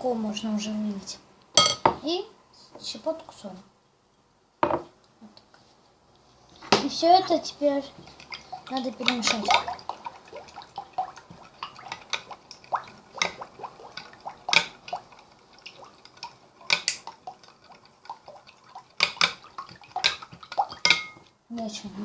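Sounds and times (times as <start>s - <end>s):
liquid sloshing: 6.5s - 21.2s
spoon clinking against bowl: 20.8s - 21.2s.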